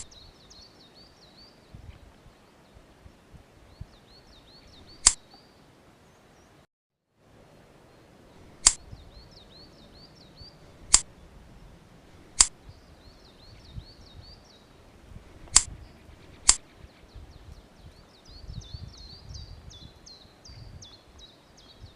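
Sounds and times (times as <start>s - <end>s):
bird chirping: 0.0s - 6.6s, 7.7s - 21.9s
pruning shears snipping twigs: 12.3s - 12.5s, 15.5s - 15.8s, 16.4s - 16.6s.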